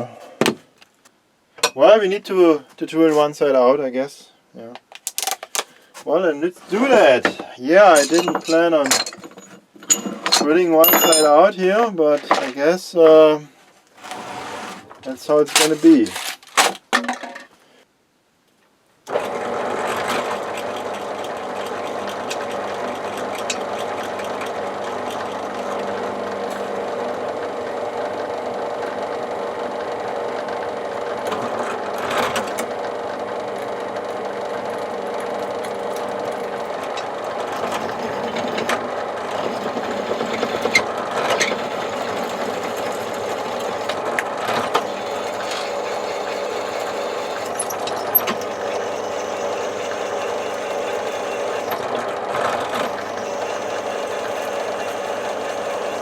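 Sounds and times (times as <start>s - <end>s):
electric drill drilling: 19.1s - 56.0s
drill bit ticking: 41.5s - 51.8s, 52.8s - 56.0s.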